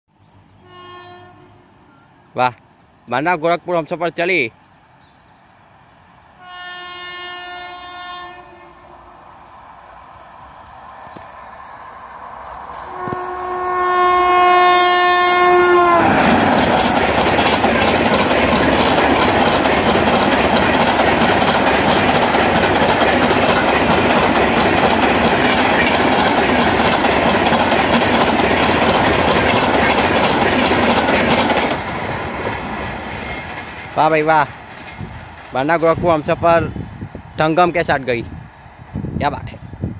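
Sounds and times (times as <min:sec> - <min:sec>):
train horn: 0:00.6 - 0:02.1, 0:06.4 - 0:09.1, 0:12.8 - 0:16.5
train coaches rushing and clacking: 0:09.0 - 0:39.6.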